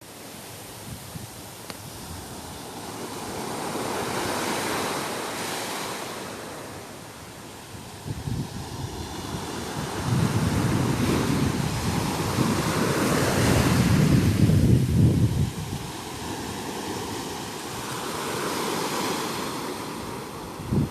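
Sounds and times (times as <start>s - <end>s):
wind buffeting microphone: 0.8s - 4.9s, 7.6s - 18.3s, 19.9s - 20.9s
ocean waves breaking: 1.5s - 20.9s.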